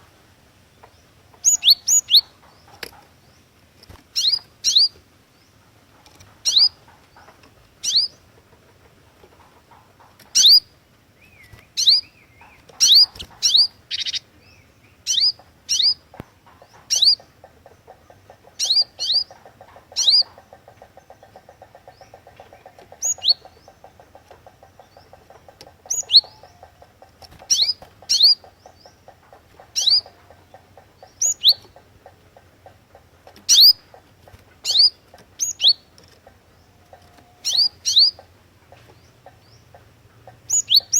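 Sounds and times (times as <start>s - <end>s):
bird chirping: 0.7s - 40.9s
faint fast ticking: 15.3s - 40.9s.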